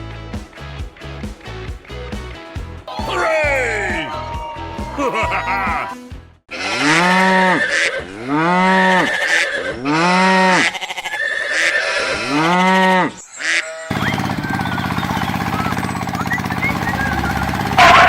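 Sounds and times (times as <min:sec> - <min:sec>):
cow mooing: 0:06.6 - 0:10.7, 0:11.5 - 0:13.2
steady machine hum: 0:13.9 - 0:18.0.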